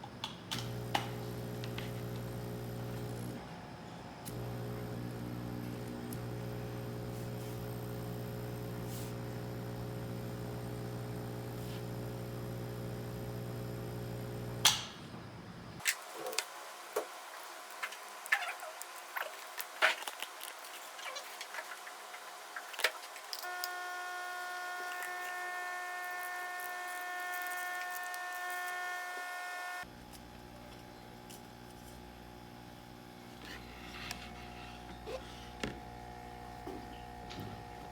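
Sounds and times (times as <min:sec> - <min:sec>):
air pump low buzz: 0:00.6 - 0:03.4, 0:04.2 - 0:14.7, 0:21.6 - 0:30.0, 0:32.3 - 0:37.9
higher-pitched tonal hum: 0:23.4 - 0:29.9.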